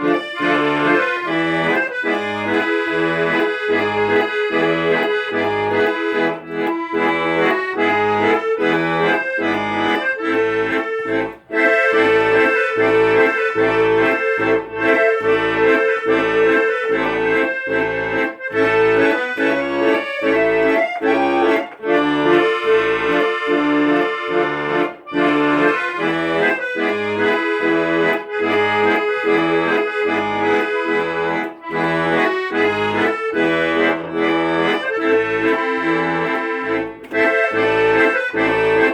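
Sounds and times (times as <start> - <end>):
accordion playing a tune: 0.0 - 38.9.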